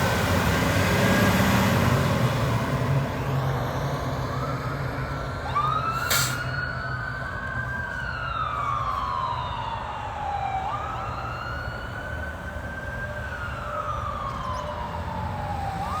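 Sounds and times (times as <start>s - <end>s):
siren wailing: 4.3s - 16.0s.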